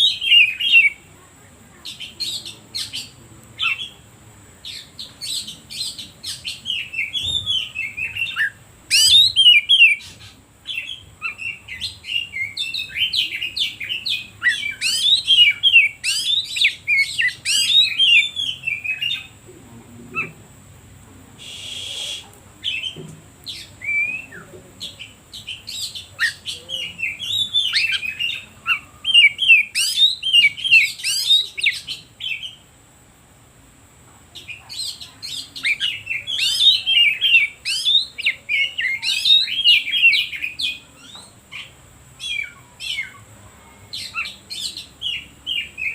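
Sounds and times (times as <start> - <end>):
bird singing whistles and trills: 0.0 - 1.0, 4.6 - 19.3, 21.4 - 32.6, 34.5 - 43.2
faint high whine: 17.9 - 25.8
short hiss: 21.4 - 22.4.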